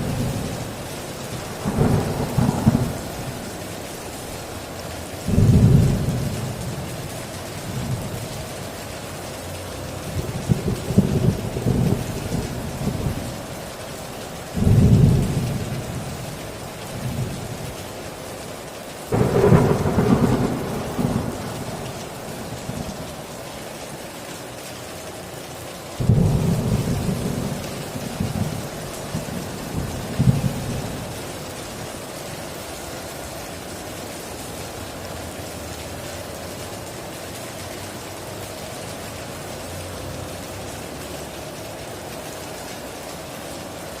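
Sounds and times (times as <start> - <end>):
heavy rain: 0.0 - 44.0
thunder cracks rumbling: 1.4 - 3.7, 19.1 - 23.4, 26.0 - 31.2.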